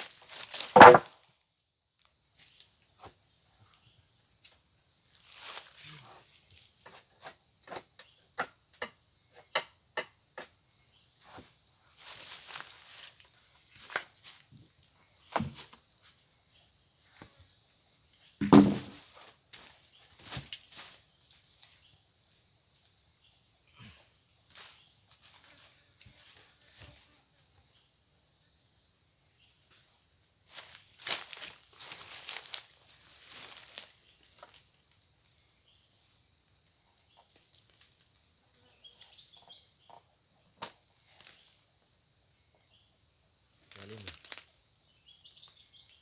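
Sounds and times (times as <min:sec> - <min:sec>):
insects chirring: 0:00.0 - 0:46.0
sharp knocks and clicks: 0:00.8 - 0:01.0
loud thud: 0:00.8 - 0:01.1, 0:18.4 - 0:19.0.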